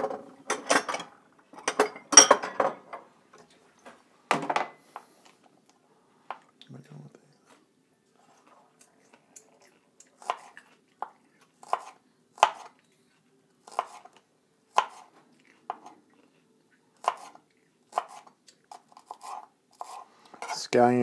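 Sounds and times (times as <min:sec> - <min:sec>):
knife chopping on cutting board: 0:11.6 - 0:12.7, 0:13.6 - 0:14.1, 0:14.7 - 0:15.1, 0:17.0 - 0:20.0.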